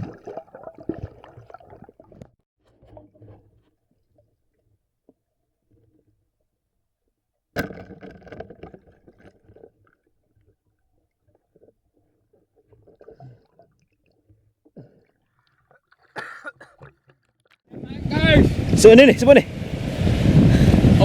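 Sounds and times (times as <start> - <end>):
water splashing and gurgling: 0.0 - 3.4, 7.6 - 18.8.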